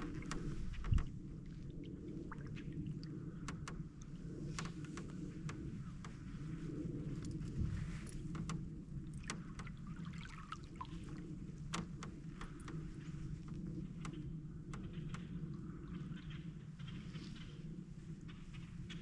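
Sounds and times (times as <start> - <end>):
steady low rumble: 0.0 - 19.0
water drips: 9.1 - 13.6.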